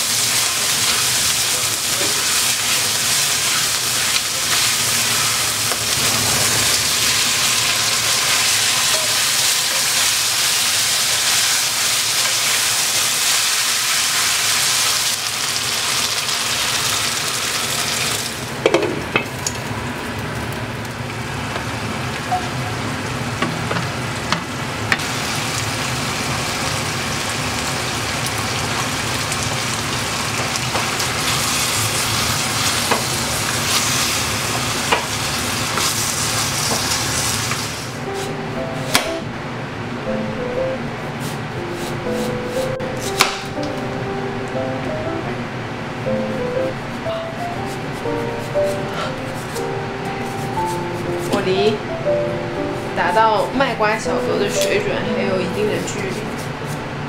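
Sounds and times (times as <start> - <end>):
meat sizzling in a hot pan: 0.0 - 18.4, 25.0 - 37.9.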